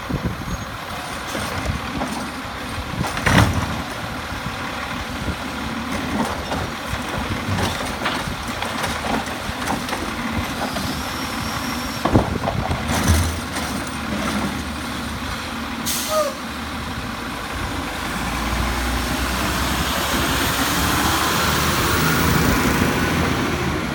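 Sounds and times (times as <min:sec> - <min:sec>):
short air hiss: 0:15.8 - 0:16.4.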